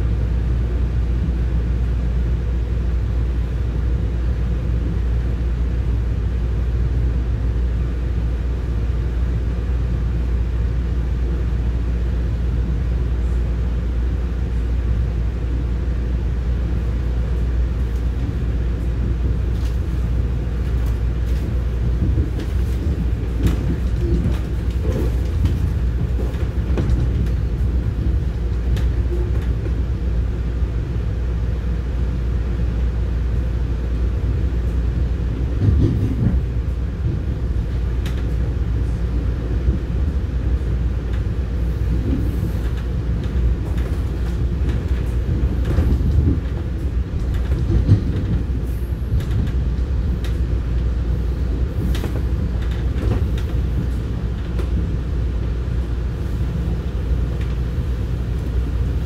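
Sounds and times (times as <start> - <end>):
train rumble from on board: 0.0 - 59.0
wheels knocking and clicking on track: 20.6 - 29.8, 41.9 - 50.5.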